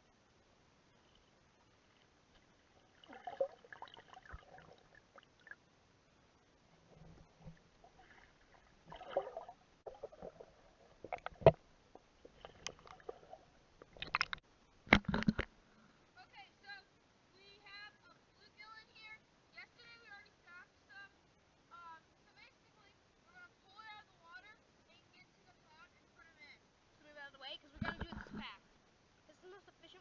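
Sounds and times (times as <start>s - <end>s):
water sloshing and gurgling: 1.0s - 5.7s, 6.6s - 15.5s, 27.8s - 28.6s.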